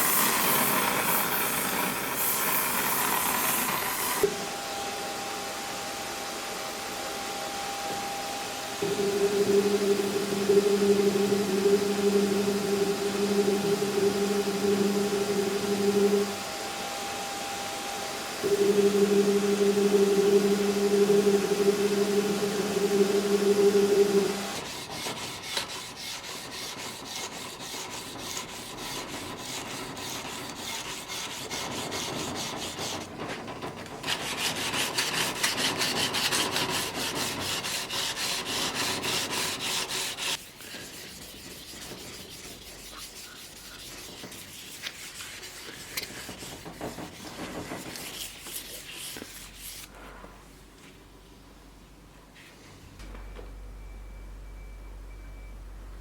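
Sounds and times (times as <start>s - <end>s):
machine hum: 0.0s - 40.4s
abrasive rubbing on steel blade: 34.2s - 47.1s.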